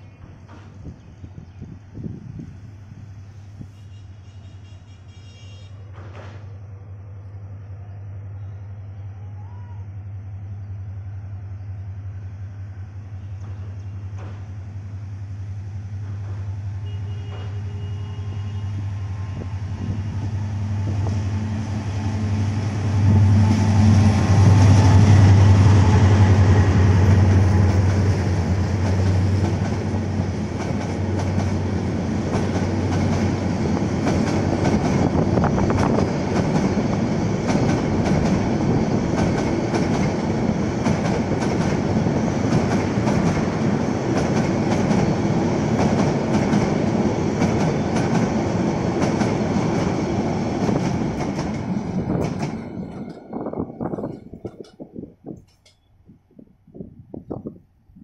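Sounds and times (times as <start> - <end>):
diesel locomotive engine drone: 0.0 - 58.0
coach wheels clattering over rail joints: 23.8 - 55.8.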